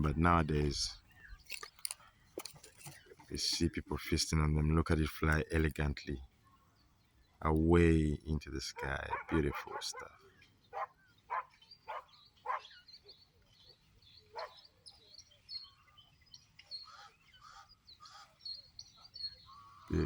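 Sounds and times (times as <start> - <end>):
small birds chirping: 0.0 - 20.0
loud short bird calls: 16.7 - 20.0.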